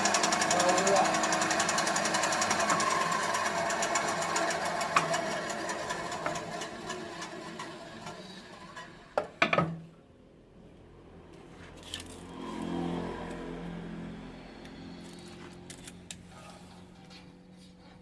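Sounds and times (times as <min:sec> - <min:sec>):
band saw running: 0:00.0 - 0:09.4.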